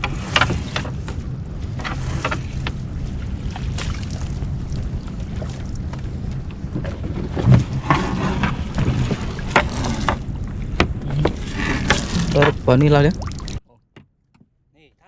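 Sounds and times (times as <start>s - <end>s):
boat engine idling: 0.0s - 13.7s
knocks and clatter: 5.8s - 13.0s.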